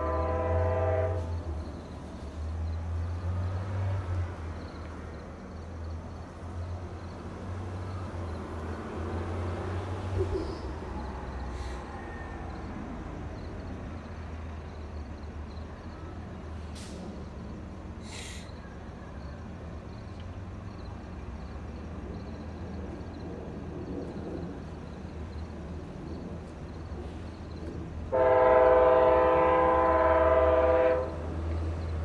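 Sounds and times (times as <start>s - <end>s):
distant train rumbling: 0.0s - 32.0s
outdoor background noise: 0.0s - 32.0s
short hisses: 18.0s - 18.6s.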